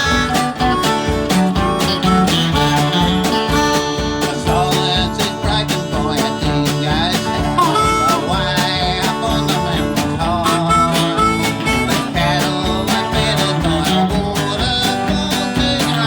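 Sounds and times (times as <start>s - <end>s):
country string band playing: 0.0s - 16.0s
strummed guitar: 0.0s - 16.0s.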